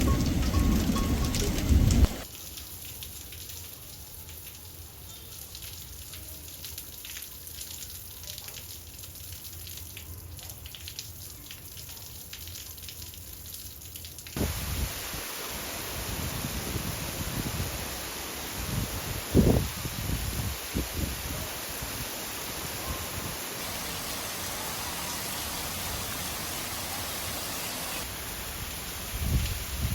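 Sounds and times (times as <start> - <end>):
water drops dripping: 0.0 - 8.6
steady rain: 0.0 - 29.9.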